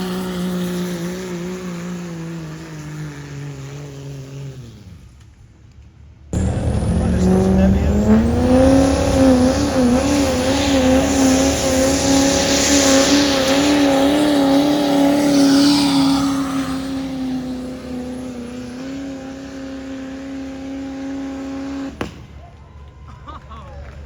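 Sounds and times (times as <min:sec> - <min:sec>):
diesel truck engine at high revs: 0:00.0 - 0:05.2, 0:06.4 - 0:22.2
hiss: 0:09.0 - 0:17.1.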